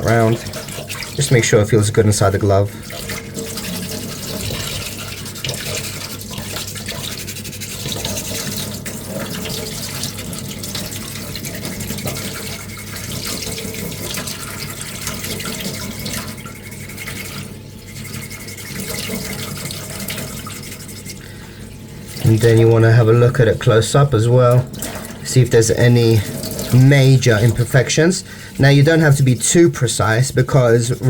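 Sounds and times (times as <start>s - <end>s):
sandpaper scrubbing: 5.7s - 8.6s, 20.3s - 21.2s.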